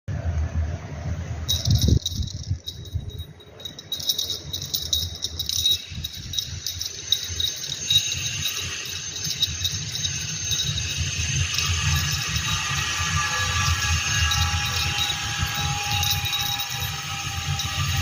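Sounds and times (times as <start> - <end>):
low rumble: 0.2 - 10.9
jingling and rattling clicks: 1.5 - 18.0.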